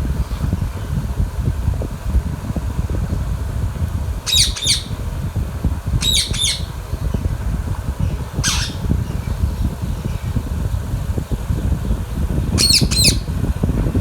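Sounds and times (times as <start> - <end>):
parakeet squawking: 4.3 - 5.0, 6.0 - 6.7, 8.1 - 9.2, 12.6 - 13.3.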